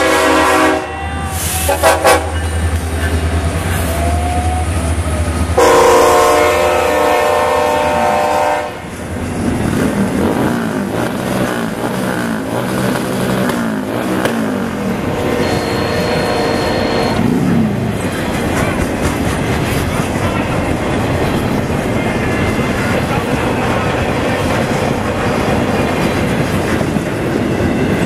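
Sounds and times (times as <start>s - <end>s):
train horn blasts: 0.0s - 2.6s, 5.6s - 8.9s, 15.0s - 17.3s
locomotive engine rumbling: 0.0s - 28.0s
wheels clattering over rails: 17.4s - 28.0s.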